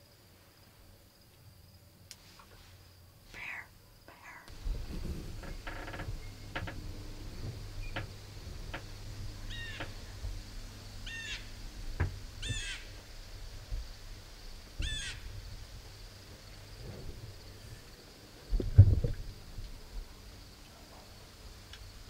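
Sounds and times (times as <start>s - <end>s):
crow-like bird calls: 9.4s - 9.9s, 11.0s - 11.6s, 12.4s - 13.0s, 14.8s - 15.3s.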